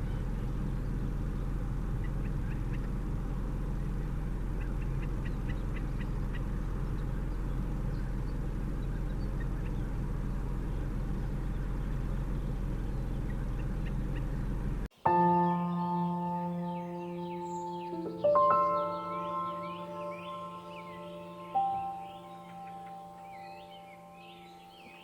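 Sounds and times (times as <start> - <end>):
wetland birds calling: 0.0 - 3.2, 3.8 - 14.6, 15.2 - 25.0
steady low rumble: 0.0 - 14.9.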